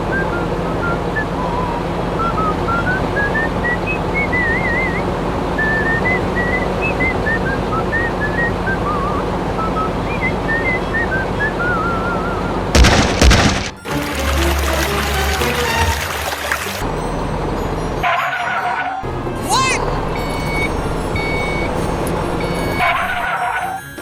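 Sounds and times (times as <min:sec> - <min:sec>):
loud sudden thump: 0:12.8 - 0:13.8.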